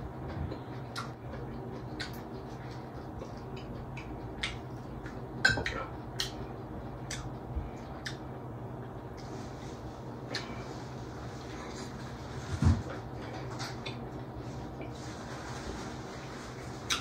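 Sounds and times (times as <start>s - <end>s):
steady low hum: 0.0s - 17.0s
chewing and lip-smacking: 0.2s - 8.4s.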